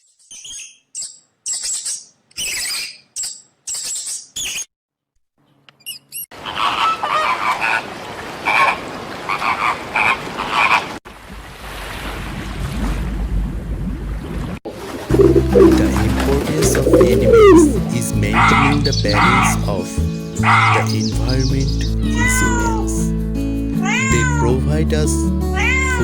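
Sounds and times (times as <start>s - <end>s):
croaking calls: 8.5s - 10.9s, 15.1s - 19.7s, 20.4s - 22.6s
high-pitched chirping calls: 15.1s - 19.6s.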